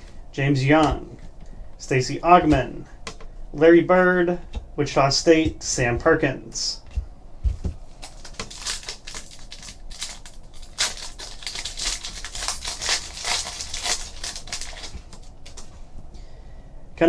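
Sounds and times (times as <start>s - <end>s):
cards clicking and rustling: 7.9s - 15.7s.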